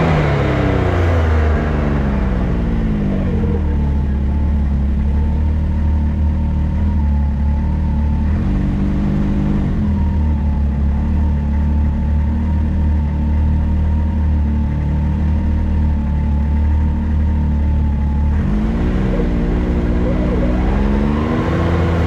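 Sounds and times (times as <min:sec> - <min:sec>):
vehicle engine running: 0:00.0 - 0:22.0
thin high whine: 0:18.6 - 0:22.0.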